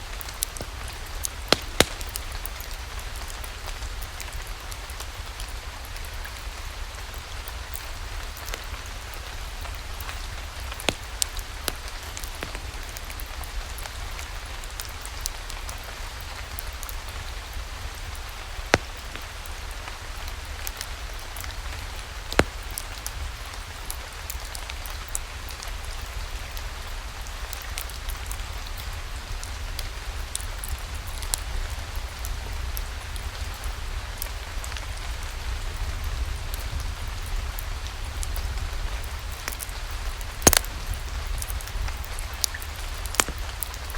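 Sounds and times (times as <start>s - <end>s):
steady rain falling: 0.0s - 43.9s
sharp pops: 1.5s - 2.4s, 22.3s - 22.9s, 40.4s - 41.0s, 42.4s - 43.8s.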